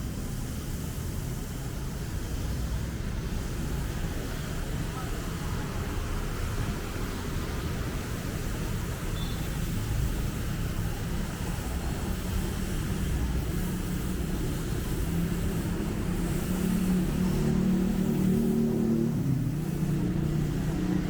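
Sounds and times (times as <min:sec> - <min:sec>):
city road traffic rumble: 0:00.0 - 0:21.0
vehicle engine approaching: 0:14.0 - 0:21.0.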